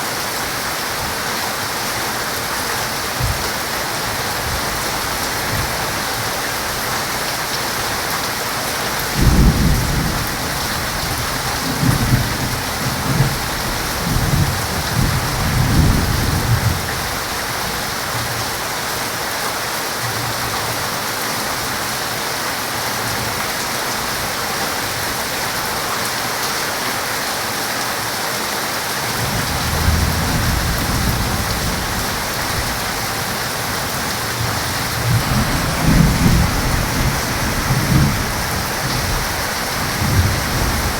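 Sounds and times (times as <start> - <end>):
heavy rain falling: 0.0 - 40.9
rolling thunder: 9.1 - 17.1, 29.2 - 40.9.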